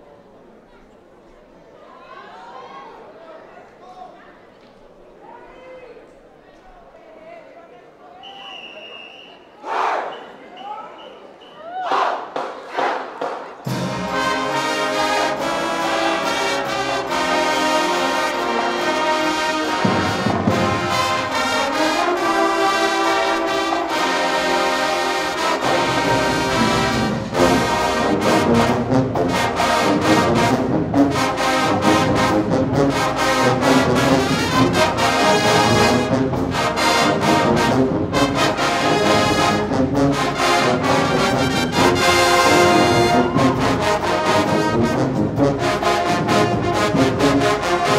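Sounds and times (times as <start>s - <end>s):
marching band playing: 11.4s - 47.9s.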